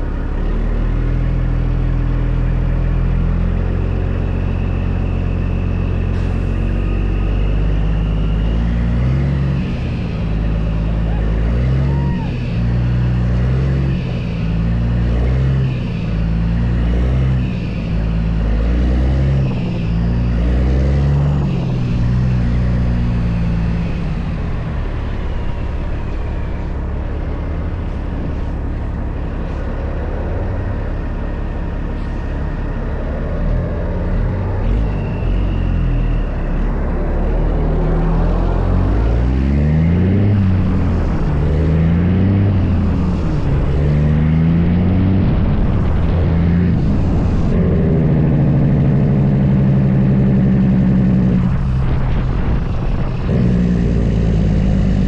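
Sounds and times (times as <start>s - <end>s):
diesel truck engine shifting gears: 0.0s - 55.0s.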